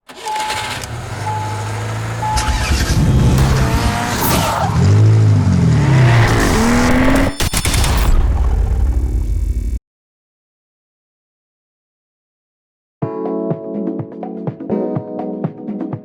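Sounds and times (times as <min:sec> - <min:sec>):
car engine revving: 0:00.1 - 0:09.7
short beeps: 0:00.2 - 0:01.6, 0:02.2 - 0:03.8
music: 0:13.0 - 0:16.0.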